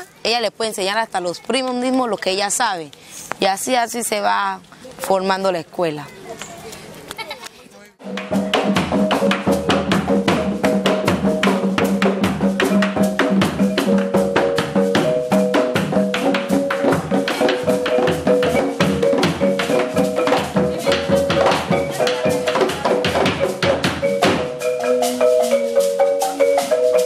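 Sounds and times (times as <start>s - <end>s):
drums and percussion: 8.0s - 27.0s
marimba notes: 8.0s - 27.0s.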